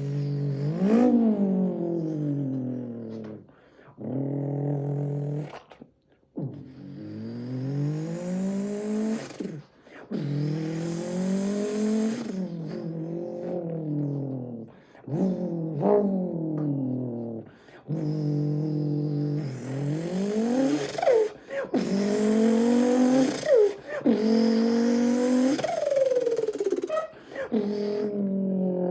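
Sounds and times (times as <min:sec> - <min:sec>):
man imitating engine revving: 0:15.1 - 0:28.9.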